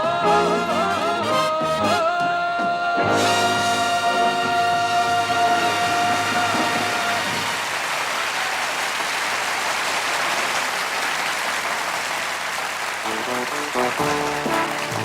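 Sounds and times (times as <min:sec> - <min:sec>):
band music: 0:00.0 - 0:07.6, 0:13.0 - 0:15.0
audience applauding: 0:03.9 - 0:15.0.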